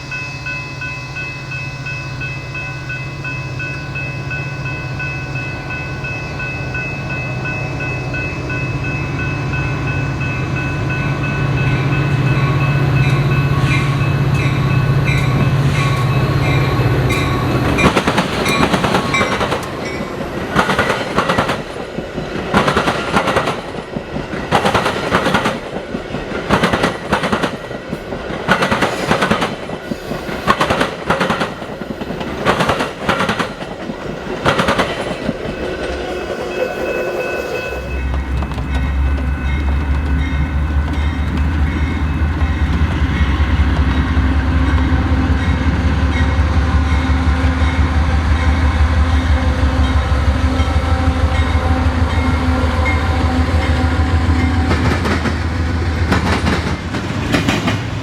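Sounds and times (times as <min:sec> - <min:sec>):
diesel locomotive engine drone: 0:00.0 - 0:58.0
train wheels clattering over rail joints: 0:17.6 - 0:35.7, 0:38.0 - 0:45.8, 0:54.6 - 0:58.0.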